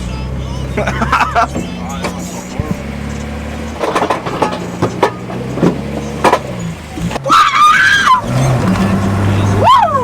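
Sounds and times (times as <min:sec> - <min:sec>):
car engine running: 0:00.0 - 0:10.0
knocks and clicks: 0:01.5 - 0:07.2.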